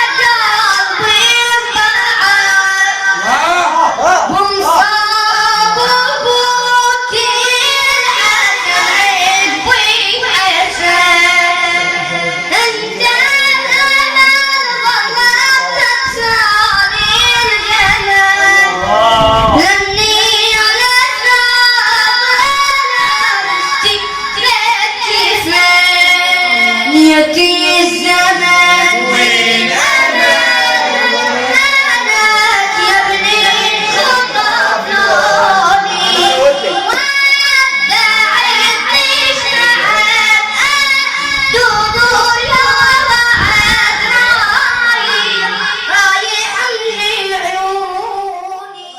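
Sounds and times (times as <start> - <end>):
high solo voice chanting: 3.1 - 6.6, 18.3 - 20.4, 26.2 - 43.1.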